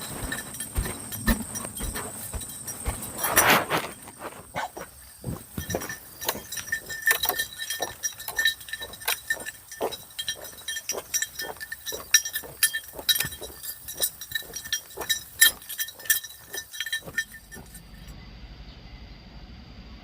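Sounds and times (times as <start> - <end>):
small metal bell jingling: 0.0 - 18.1.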